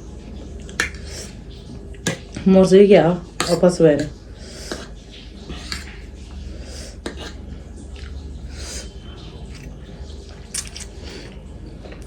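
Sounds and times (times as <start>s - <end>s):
steady low hum: 0.0s - 12.0s
person chewing food: 0.6s - 2.4s, 6.9s - 9.8s, 10.4s - 12.0s.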